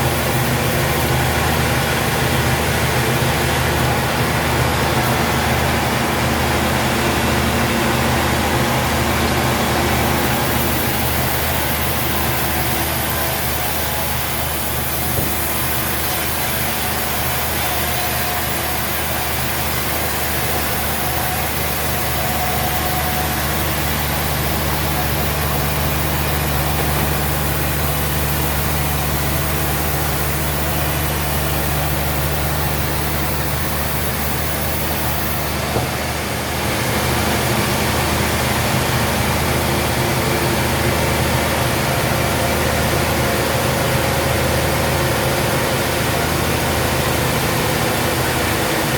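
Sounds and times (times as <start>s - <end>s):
engine low hum: 0.0s - 48.9s
constant hiss: 10.0s - 35.6s.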